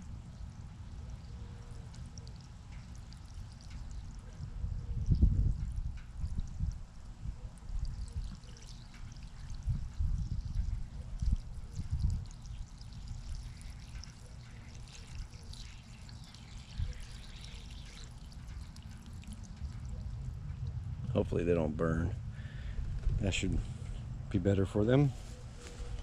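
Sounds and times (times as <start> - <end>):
water pouring onto plants: 0.0 - 20.6
low rumbles: 16.6 - 26.0.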